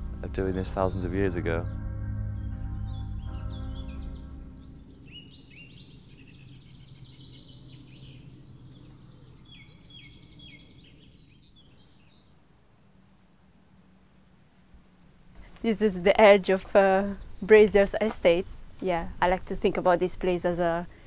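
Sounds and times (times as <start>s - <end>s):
low background rumble: 0.0s - 5.1s
songbirds chirping: 0.0s - 21.0s.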